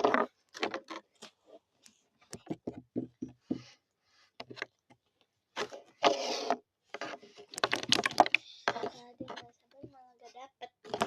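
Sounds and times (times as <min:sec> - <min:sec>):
container rustling: 0:05.6 - 0:09.6.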